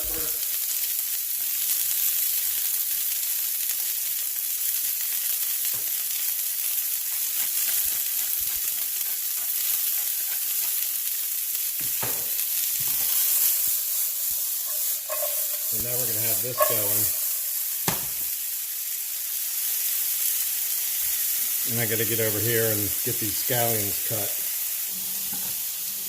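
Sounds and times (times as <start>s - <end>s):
vegetables sizzling in oil: 0.0s - 26.0s
utensil knocking against pan: 14.7s - 15.7s, 16.6s - 17.2s.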